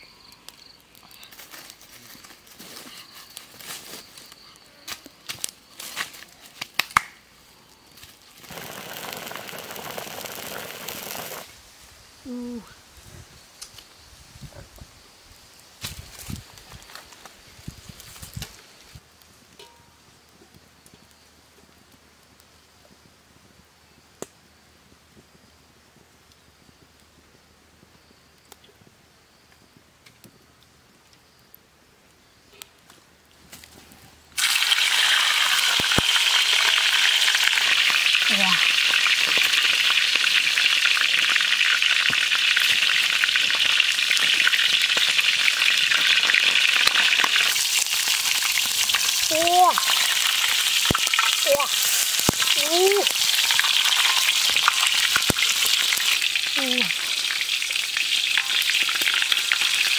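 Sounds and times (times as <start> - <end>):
chicken sizzling in hot oil: 8.3 - 11.5, 34.4 - 59.9.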